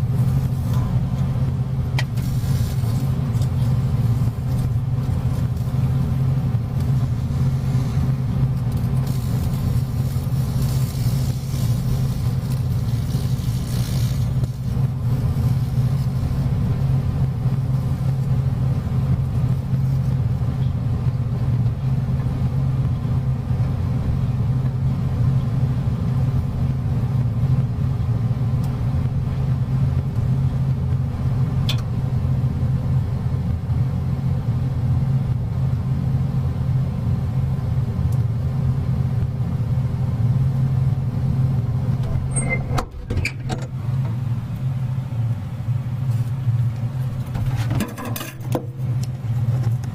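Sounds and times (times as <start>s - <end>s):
microwave oven humming: 0.0s - 49.9s.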